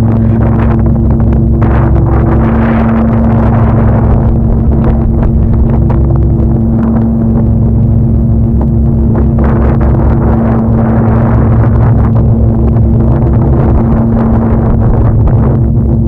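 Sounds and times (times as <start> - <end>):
motor humming: 0.0 - 16.0
rushing noise: 0.0 - 16.0.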